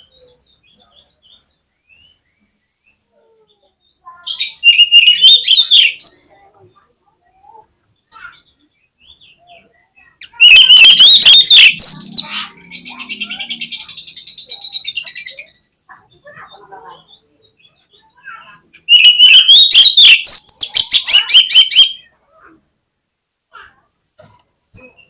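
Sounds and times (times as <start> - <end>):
bird singing whistled phrases: 3.9 - 6.3, 10.2 - 15.5, 18.9 - 22.1.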